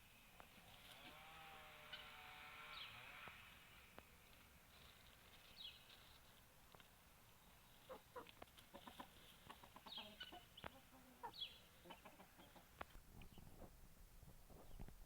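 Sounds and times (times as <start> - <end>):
chickens clucking: 7.4 - 13.5.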